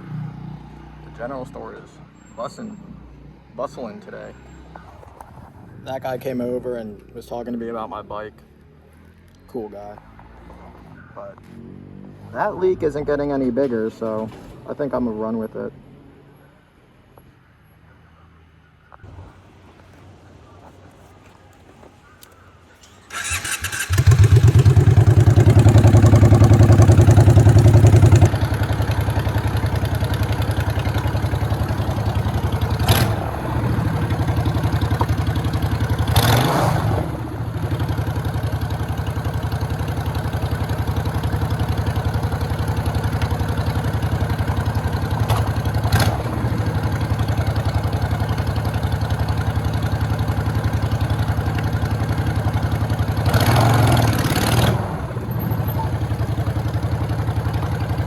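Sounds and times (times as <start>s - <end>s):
motorcycle engine running: 23.0s - 58.0s.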